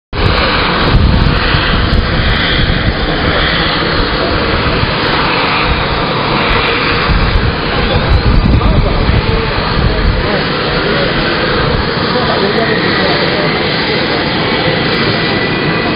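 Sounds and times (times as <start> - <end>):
helicopter turbine rush: 0.1 - 15.9
low rumble: 0.2 - 12.7.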